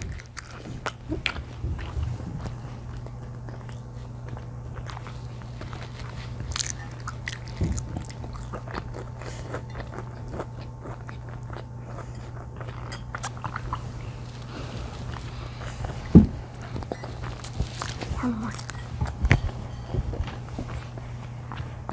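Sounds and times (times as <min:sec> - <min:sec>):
crisp crust crunches: 0:00.0 - 0:11.7, 0:16.5 - 0:19.5
biting and chewing pizza: 0:00.0 - 0:21.9
steady low hum: 0:00.0 - 0:21.9.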